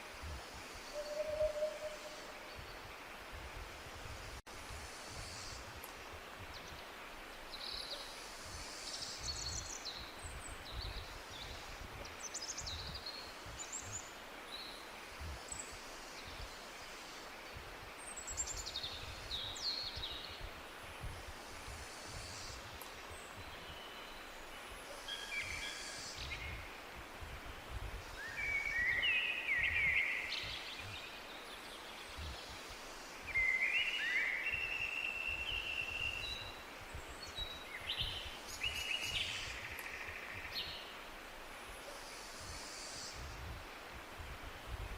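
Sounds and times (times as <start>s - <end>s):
steady background hiss: 0.0s - 44.9s.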